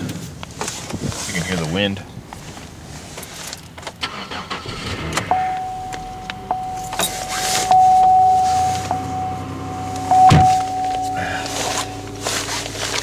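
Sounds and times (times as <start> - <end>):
car engine cranking and running: 2.2 - 13.0
car warning chime: 4.6 - 13.0.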